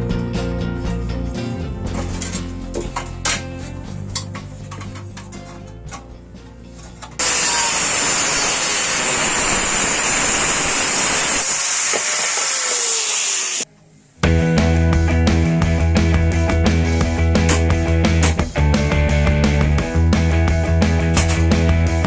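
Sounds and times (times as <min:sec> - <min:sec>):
loud rock music: 0:00.0 - 0:07.2, 0:14.2 - 0:22.0
soft background music: 0:00.0 - 0:07.2.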